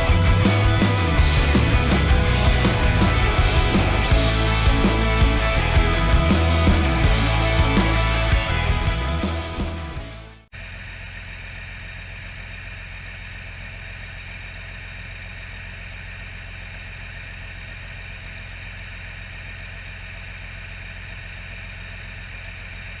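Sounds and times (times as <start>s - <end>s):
diesel engine idling: 0.0s - 9.8s.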